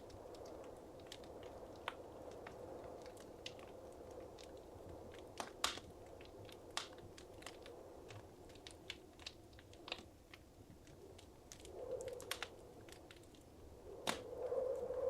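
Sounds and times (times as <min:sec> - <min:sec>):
soft low hiss: 0:00.0 - 0:15.0
wood fire crackling: 0:00.0 - 0:15.0.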